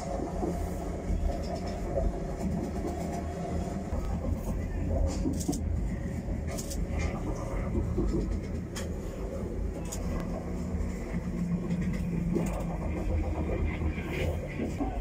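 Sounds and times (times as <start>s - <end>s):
railway carriage rumble: 0.0s - 15.0s
faint voices: 2.6s - 11.0s, 12.5s - 15.0s.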